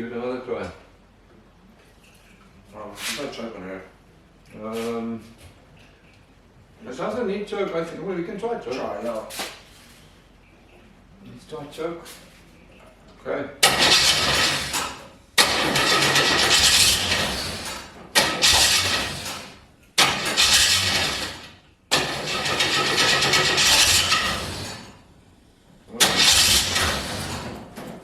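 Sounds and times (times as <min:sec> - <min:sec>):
engine cranking and coughing: 0:13.6 - 0:25.0, 0:25.9 - 0:27.7.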